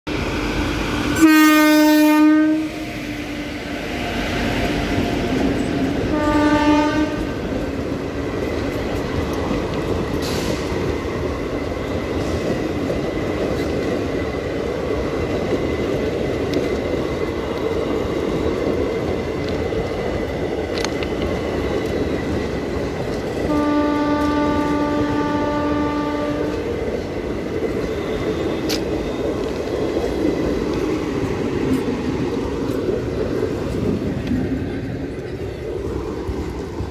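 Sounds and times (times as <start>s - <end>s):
train rumble and wheel clatter: 0.1s - 36.9s
locomotive horn blasts: 1.2s - 2.8s, 6.1s - 7.4s, 23.5s - 26.7s.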